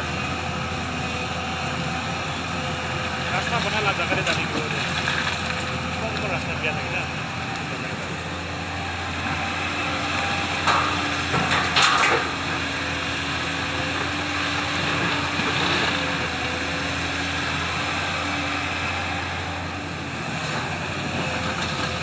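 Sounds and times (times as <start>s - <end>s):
excavator diesel engine running: 0.0s - 22.0s
clattering and crunching impacts: 10.3s - 16.1s.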